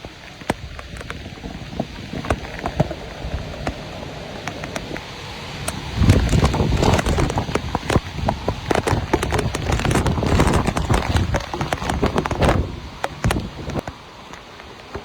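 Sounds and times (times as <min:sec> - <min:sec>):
heavy rain on hard surface: 0:00.0 - 0:15.0.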